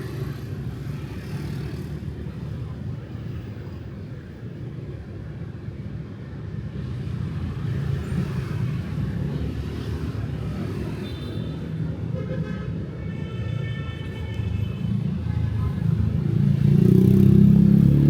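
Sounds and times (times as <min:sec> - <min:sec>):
road traffic rumble: 0:14.0 - 0:18.0.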